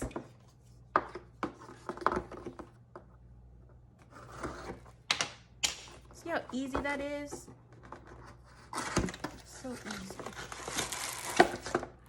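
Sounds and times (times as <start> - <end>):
package scrapes and cuts: 8.5 - 11.7
packaging ripping: 9.8 - 11.7.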